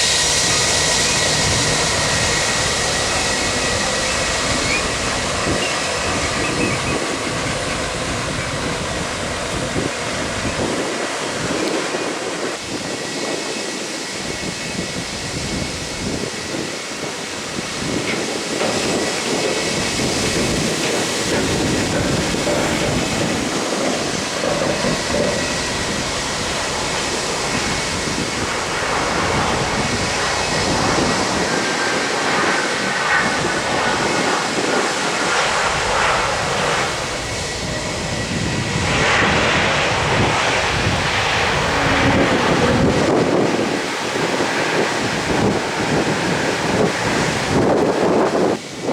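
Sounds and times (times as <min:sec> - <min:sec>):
jet engines running: 0:00.0 - 0:48.9.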